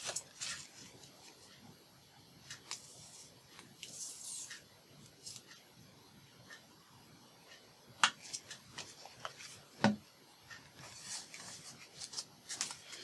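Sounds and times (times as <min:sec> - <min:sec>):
paper rustling: 0:10.8 - 0:13.0.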